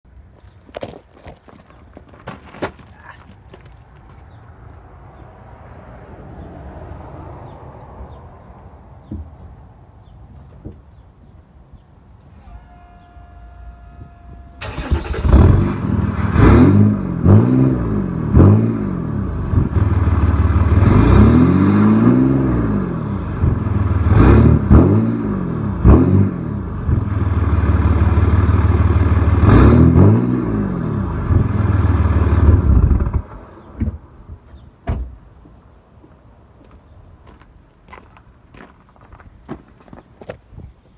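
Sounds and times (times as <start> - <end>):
diesel engine idling and revving: 12.3 - 33.6.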